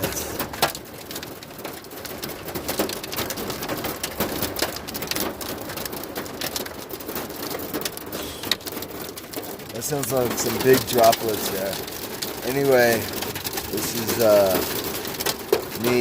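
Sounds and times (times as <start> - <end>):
heavy rain on car roof: 0.0 - 16.0.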